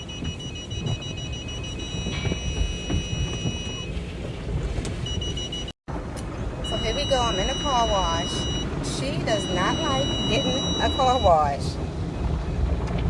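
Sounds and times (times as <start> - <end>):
car wash rumble and spray: 0.0 - 13.0
high continuous warning tone: 6.6 - 11.6.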